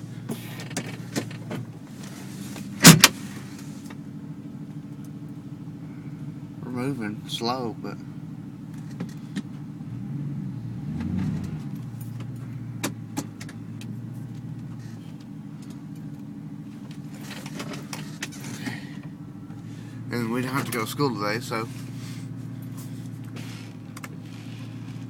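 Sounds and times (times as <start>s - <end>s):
truck engine running: 0.0s - 25.0s
sharp clicks and light rattles: 22.6s - 24.2s.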